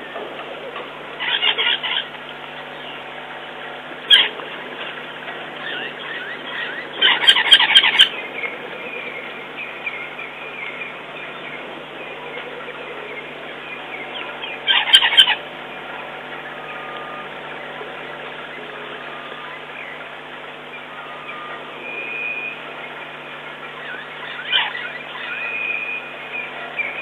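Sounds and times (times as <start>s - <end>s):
harsh bird calls: 0.0s - 27.0s
faint bird chirps: 5.6s - 27.0s.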